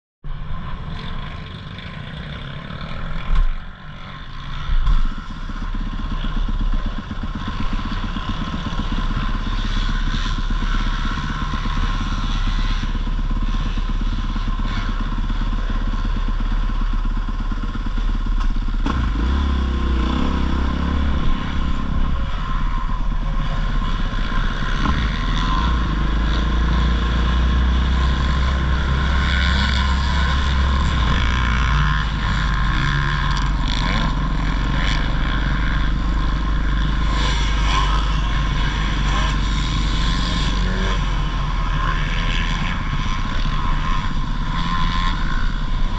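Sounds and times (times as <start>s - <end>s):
dirt bike engine running: 0.2s - 45.9s.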